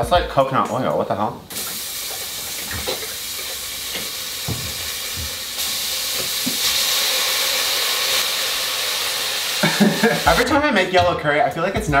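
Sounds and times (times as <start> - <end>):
paste sizzling in oil: 1.5 - 10.9.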